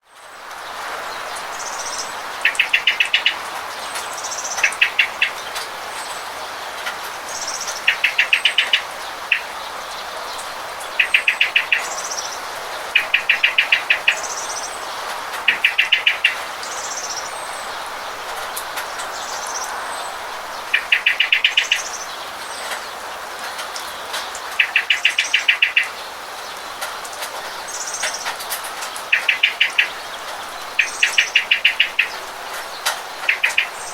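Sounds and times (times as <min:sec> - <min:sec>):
rain hiss: 0:00.0 - 0:33.9
bird rapid trills: 0:01.6 - 0:03.4, 0:20.6 - 0:22.1, 0:27.6 - 0:33.9.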